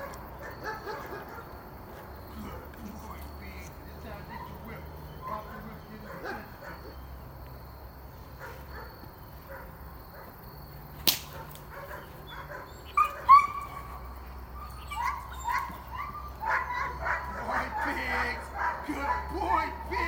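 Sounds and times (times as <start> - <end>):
young dog barking: 0.0 - 1.6, 2.3 - 2.8, 4.0 - 7.1, 8.3 - 10.4, 11.3 - 20.0
sharp crack: 11.0 - 11.8.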